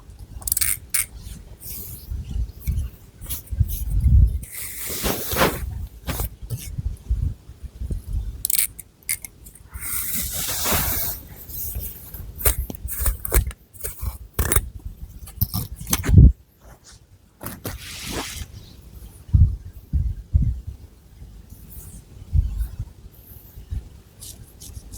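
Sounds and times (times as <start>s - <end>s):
fingernails scratching through hair: 2.6s - 6.7s.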